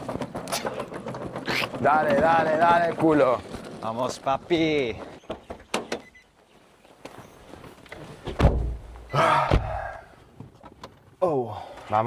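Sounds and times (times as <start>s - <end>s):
heavy thump: 8.3s - 10.0s.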